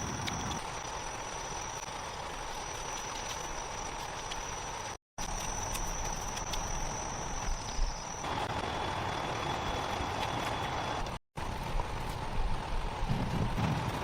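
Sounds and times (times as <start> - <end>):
high insect tone: 0.0 - 11.0.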